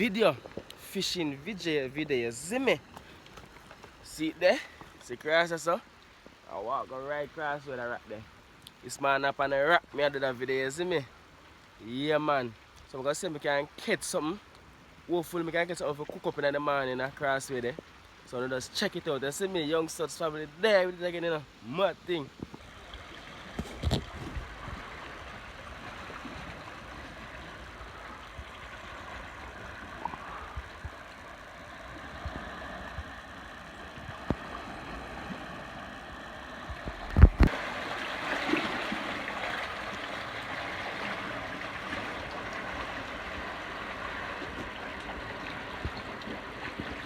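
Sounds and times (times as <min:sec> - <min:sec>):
sea water washing among rocks: 0:23.3 - 0:47.0.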